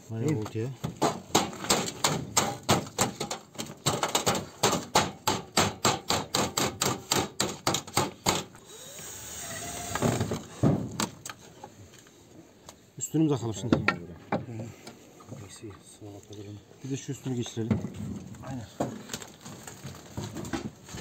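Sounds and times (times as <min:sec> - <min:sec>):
hammering on sheet metal: 0:01.0 - 0:08.5.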